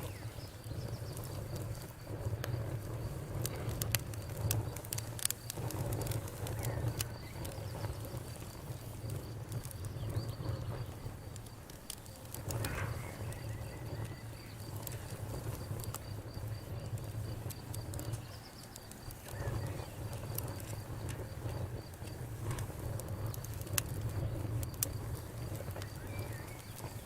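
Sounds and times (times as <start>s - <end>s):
campfire crackling: 0.0s - 27.0s
flames rumbling: 0.0s - 27.0s.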